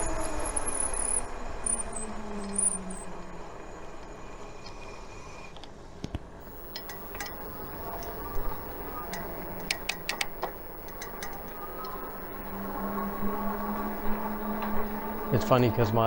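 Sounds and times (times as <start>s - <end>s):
rolling and wind noise: 5.6s - 16.0s
bike clicks and ticks: 6.5s - 16.0s.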